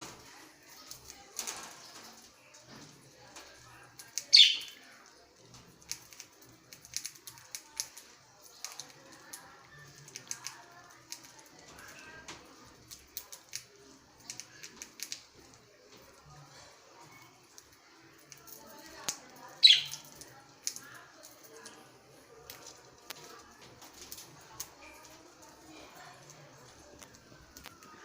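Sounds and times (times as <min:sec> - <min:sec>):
faint bird chirps: 0:04.3 - 0:04.8, 0:19.6 - 0:20.1.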